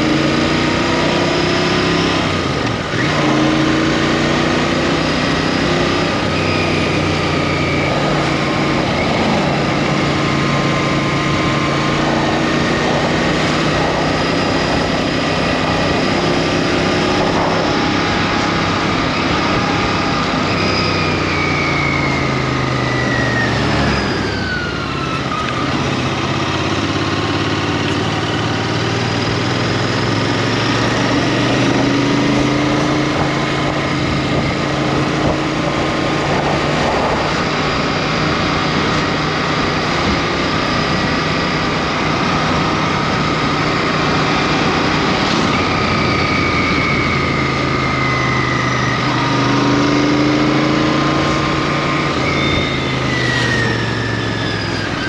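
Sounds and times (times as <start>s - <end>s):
motorcycle engine running: 0.0s - 55.0s
wind rush: 11.3s - 20.4s, 31.2s - 48.2s.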